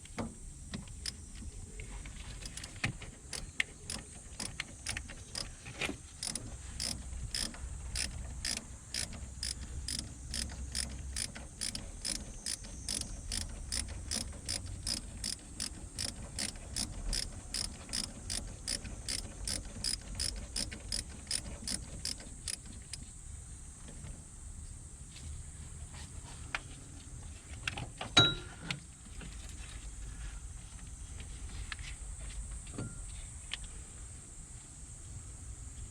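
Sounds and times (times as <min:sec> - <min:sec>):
ratchet wrench clicking: 0:00.8 - 0:01.5, 0:02.2 - 0:23.1.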